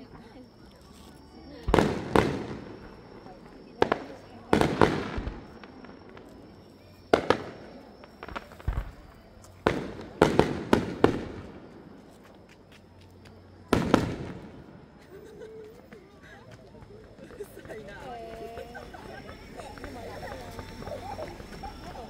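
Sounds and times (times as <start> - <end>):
fireworks bursting with bangs: 1.3 - 13.0, 13.6 - 15.0, 17.4 - 22.0.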